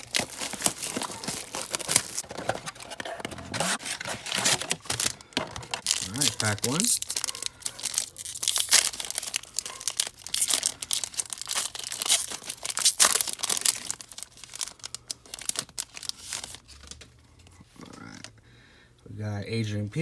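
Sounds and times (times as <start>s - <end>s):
card pack wrapper tearing: 0.0s - 17.0s
wrapper crinkling: 0.0s - 17.1s.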